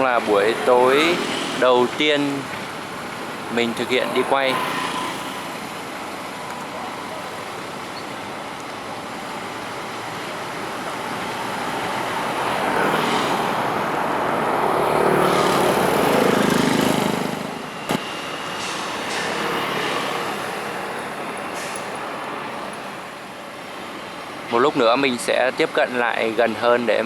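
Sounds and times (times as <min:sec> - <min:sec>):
vehicle passing by: 0:00.0 - 0:07.9, 0:09.4 - 0:23.1.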